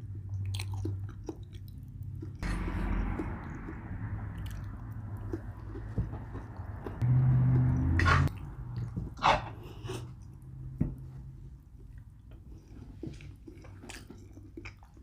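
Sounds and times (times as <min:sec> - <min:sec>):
chewing and lip-smacking: 0:00.0 - 0:07.0, 0:08.0 - 0:09.0, 0:11.5 - 0:15.0
loud low hum: 0:02.4 - 0:08.8.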